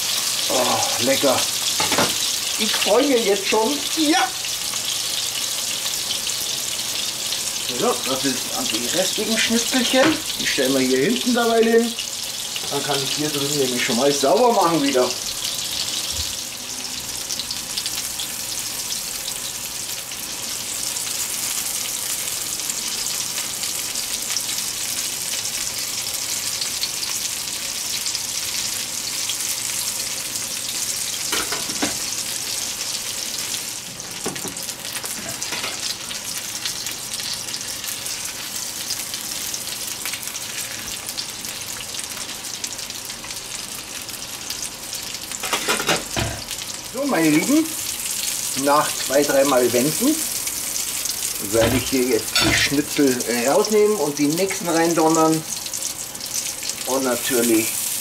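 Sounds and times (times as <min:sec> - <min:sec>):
schnitzels sizzling in a pan: 0:00.0 - 0:58.0.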